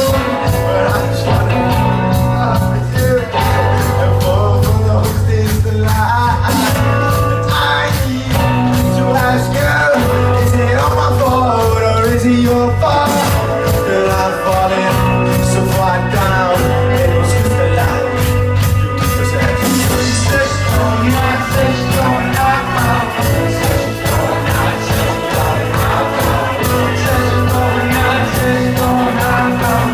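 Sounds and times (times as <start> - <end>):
person singing: 0.0 - 18.3, 19.0 - 29.9
rock band playing live: 0.0 - 29.9.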